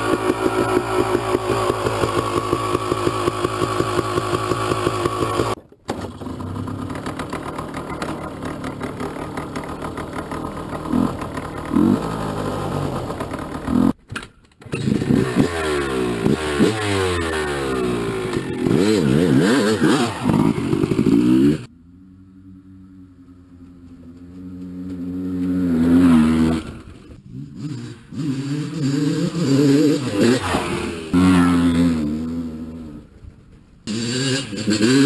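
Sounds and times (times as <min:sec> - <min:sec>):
two-stroke motorcycle engine revving: 0:00.0 - 0:14.0, 0:14.7 - 0:21.7, 0:24.2 - 0:33.0, 0:33.9 - 0:35.0.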